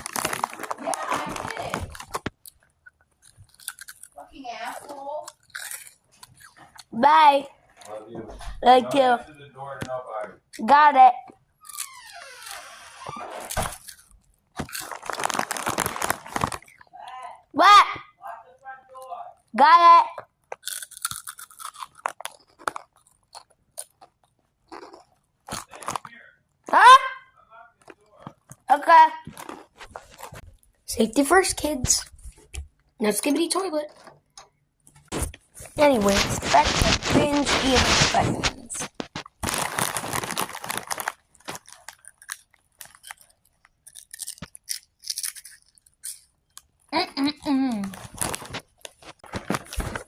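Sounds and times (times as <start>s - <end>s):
crunching and chewing snacks: 0.0s - 7.0s, 11.6s - 17.0s, 20.2s - 26.4s, 27.7s - 30.8s, 34.9s - 50.0s.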